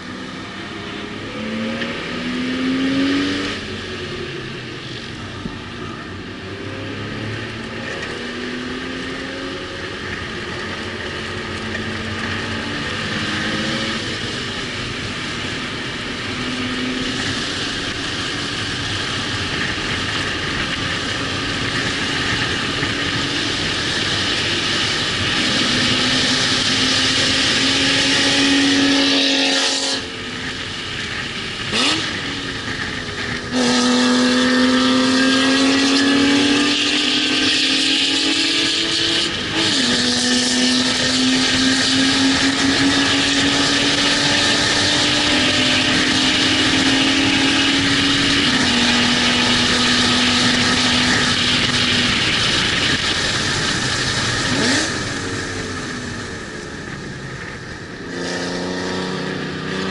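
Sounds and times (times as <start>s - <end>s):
racing car engine: 0.0s - 59.9s.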